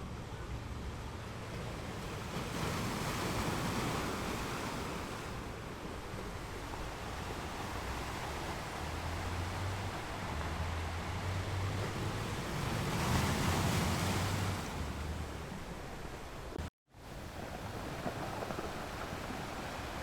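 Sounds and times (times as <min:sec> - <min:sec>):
ocean waves rushing: 0:00.0 - 0:20.0
wave breaking: 0:06.8 - 0:16.6.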